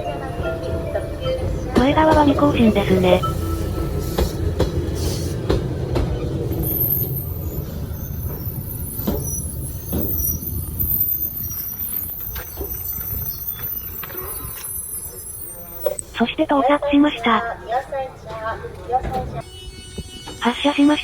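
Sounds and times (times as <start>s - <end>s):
train rumbling: 0.0s - 21.0s
train wheels clicking over rail joints: 1.5s - 14.7s.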